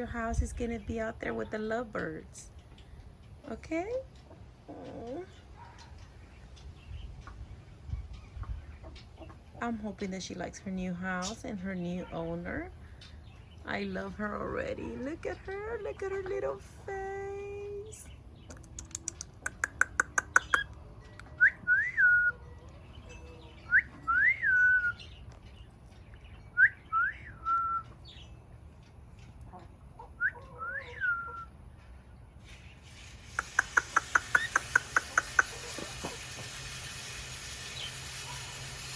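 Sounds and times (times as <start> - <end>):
cockatiel chirping: 18.8 - 20.7, 33.4 - 36.2
cockatiel whistling phrase: 30.2 - 31.5.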